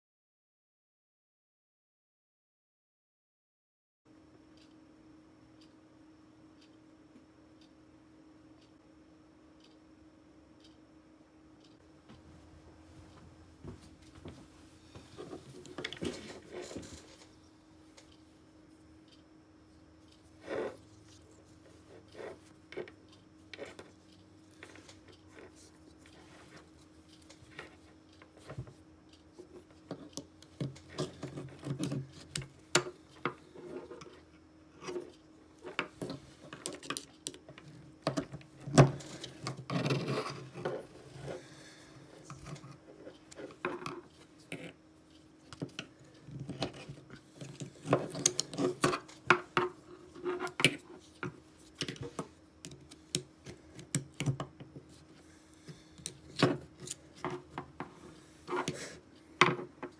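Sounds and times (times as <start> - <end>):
faint steady hum: 4.1 - 59.9
metal tools clicking and tapping: 45.5 - 54.6.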